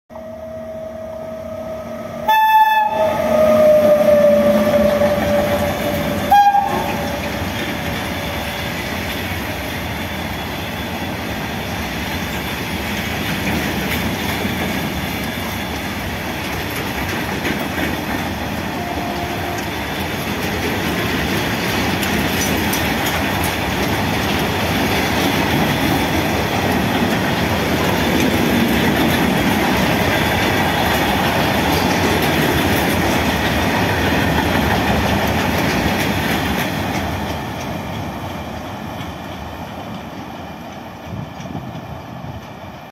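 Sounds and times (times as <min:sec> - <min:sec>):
locomotive horn: 0:00.1 - 0:08.4, 0:18.7 - 0:19.9.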